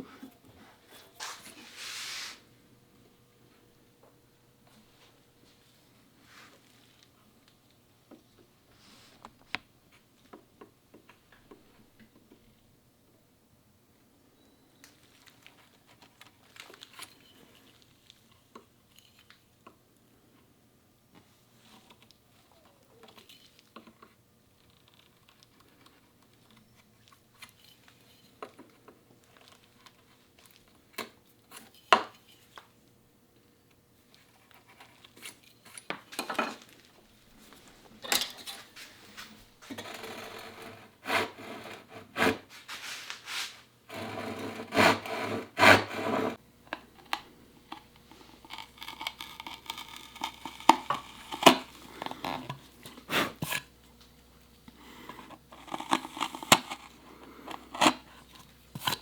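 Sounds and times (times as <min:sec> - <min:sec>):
hand saw rasping on wood: 0:39.8 - 0:42.5, 0:43.9 - 0:46.4.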